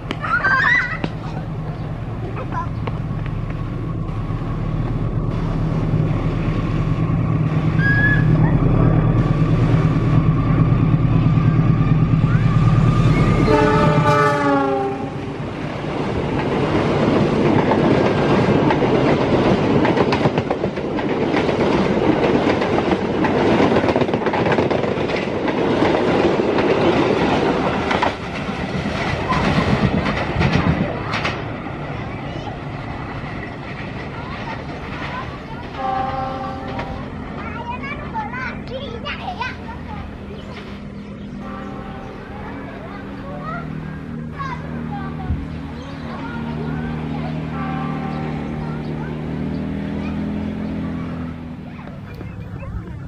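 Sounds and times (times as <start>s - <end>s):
locomotive engine drone: 0.0s - 53.0s
train wheels rushing and clattering: 0.0s - 53.0s
train horn: 13.1s - 15.4s, 35.7s - 37.2s, 41.4s - 42.6s, 47.5s - 48.8s.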